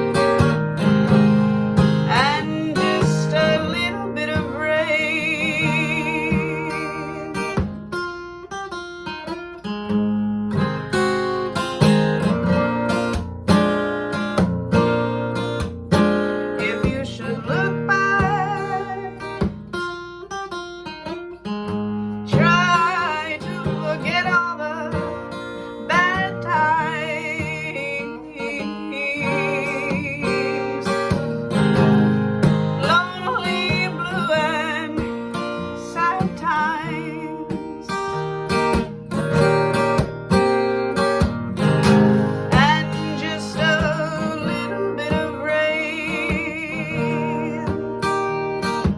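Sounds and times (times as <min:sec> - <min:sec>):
acoustic guitar strumming chords: 0:00.0 - 0:48.9.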